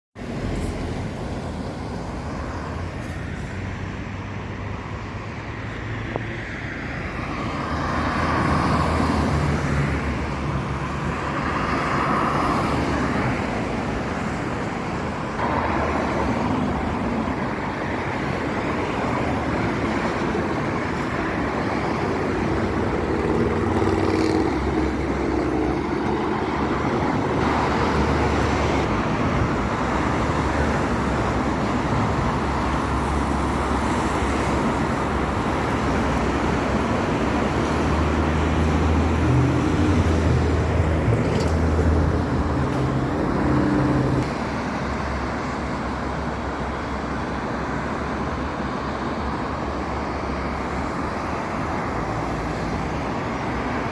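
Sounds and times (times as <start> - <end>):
vehicles passing: 0.2 - 53.9.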